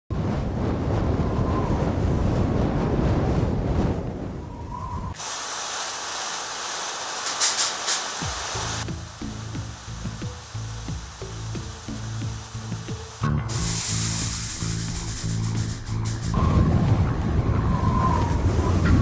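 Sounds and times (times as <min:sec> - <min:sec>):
heavy rain: 0:05.2 - 0:16.4.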